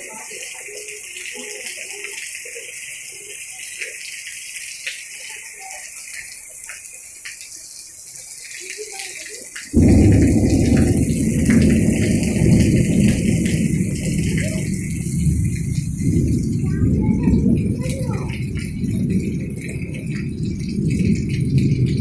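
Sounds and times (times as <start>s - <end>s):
heavy rain hiss: 0.0s - 22.0s
raindrop ticks: 0.1s - 22.0s
loud low rumble: 9.8s - 22.0s.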